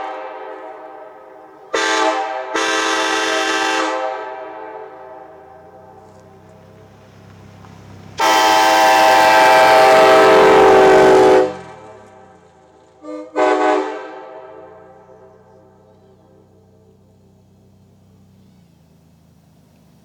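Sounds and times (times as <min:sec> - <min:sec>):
train horn blasts: 0:00.0 - 0:06.9, 0:08.2 - 0:16.6.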